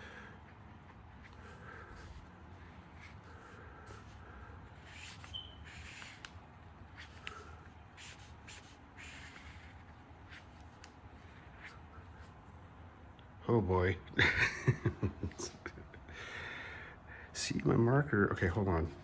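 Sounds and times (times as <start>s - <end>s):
marker scratching on paper: 0.5s - 12.4s.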